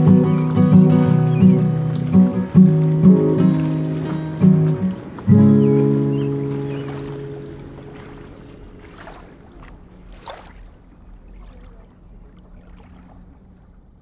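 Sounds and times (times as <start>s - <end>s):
acoustic guitar chord ringing: 0.0s - 8.9s
river water lapping: 0.0s - 14.0s
small water splashes: 0.0s - 14.0s.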